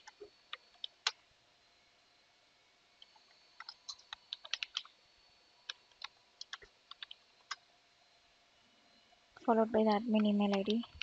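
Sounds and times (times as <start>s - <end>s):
computer keyboard typing: 0.0s - 1.2s, 3.0s - 5.0s, 5.6s - 7.6s, 10.1s - 11.0s.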